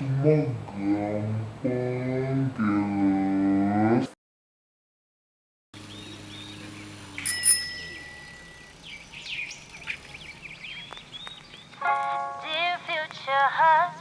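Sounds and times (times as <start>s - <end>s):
birds chirping: 5.8s - 14.0s
bright ringing ding: 7.2s - 8.8s.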